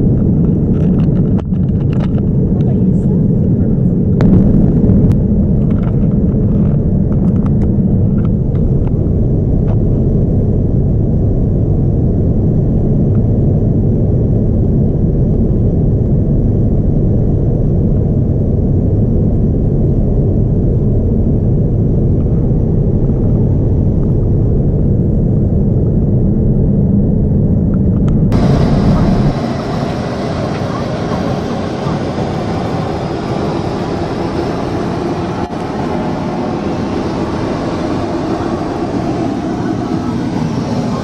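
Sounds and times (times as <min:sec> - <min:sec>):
airplane cabin rumble: 0:00.0 - 0:41.0.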